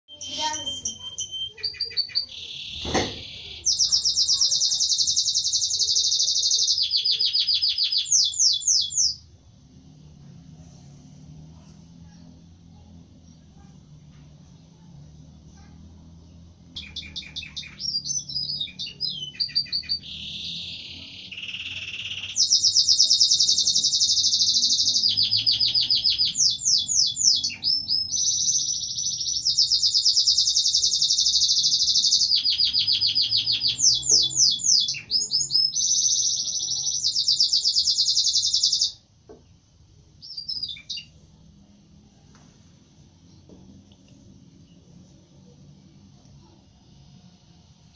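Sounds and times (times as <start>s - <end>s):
canary singing trills: 0.1s - 9.4s, 15.6s - 39.1s, 40.2s - 41.3s.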